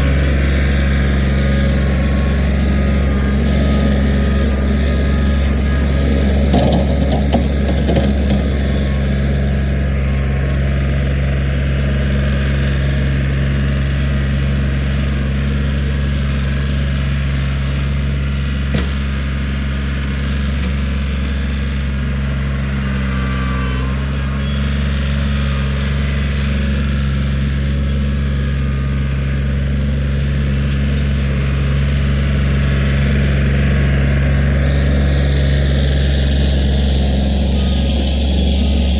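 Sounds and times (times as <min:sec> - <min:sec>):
tractor diesel engine running: 0:00.0 - 0:38.9
clattering: 0:06.5 - 0:08.7.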